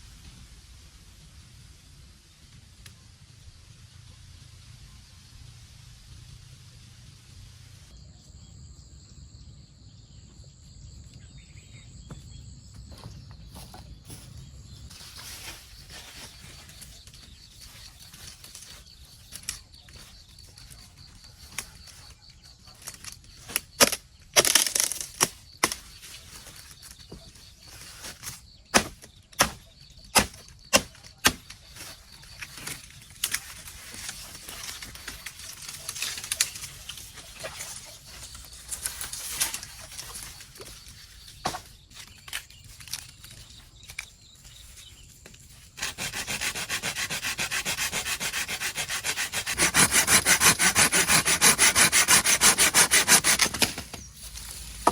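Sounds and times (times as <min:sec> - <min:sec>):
brush and leaves rustling: 0:13.1 - 0:54.9.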